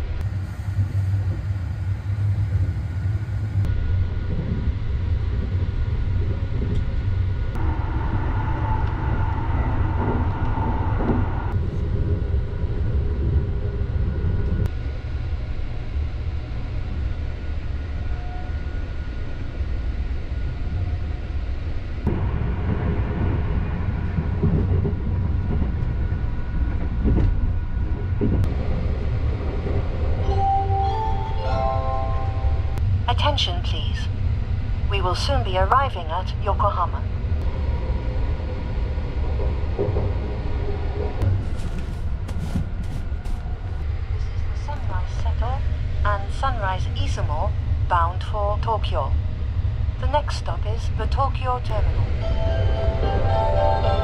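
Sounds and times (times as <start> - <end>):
train wheels rumbling on rail: 0.0 - 31.1, 36.9 - 50.2.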